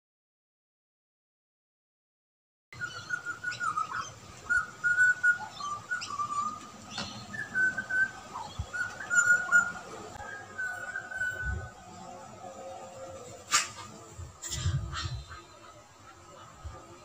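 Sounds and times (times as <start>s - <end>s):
bird whistling clear notes: 2.8s - 11.7s.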